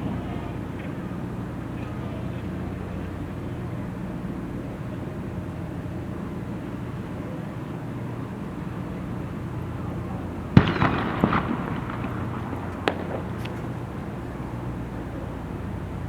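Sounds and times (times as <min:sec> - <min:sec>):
firework bang: 0:10.6 - 0:14.6
firework crackling and pops: 0:10.6 - 0:14.8.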